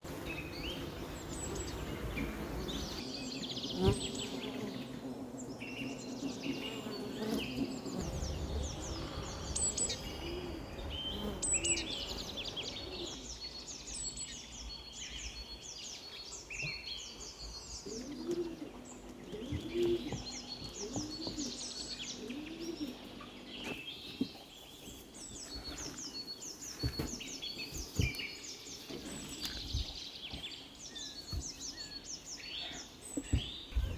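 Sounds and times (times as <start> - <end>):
bees buzzing: 0.0 - 13.3
songbirds singing and chirping: 0.0 - 33.9.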